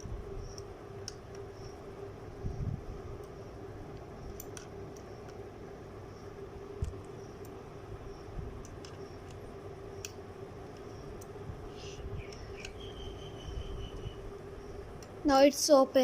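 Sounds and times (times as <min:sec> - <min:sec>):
steady hum: 0:00.0 - 0:16.0
metallic clicks: 0:03.2 - 0:05.4.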